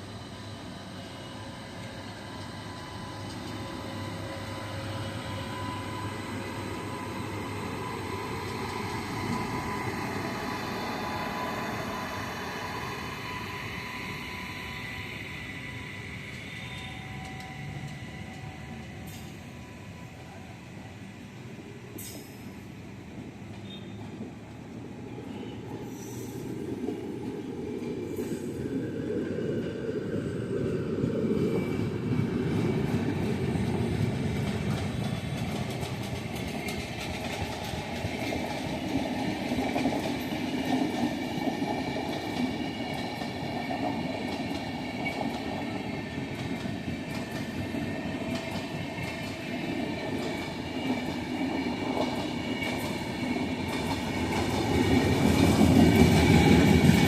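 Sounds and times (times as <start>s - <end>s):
train wheels clattering on track: 7.5s - 11.8s, 22.0s - 22.6s, 32.2s - 57.0s.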